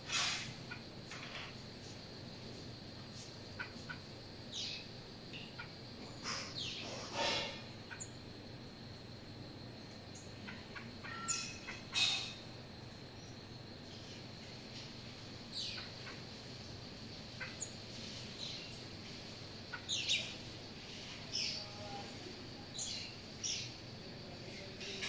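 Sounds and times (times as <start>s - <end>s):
birds calling: 3.0s - 8.5s, 9.9s - 21.8s, 22.7s - 23.9s.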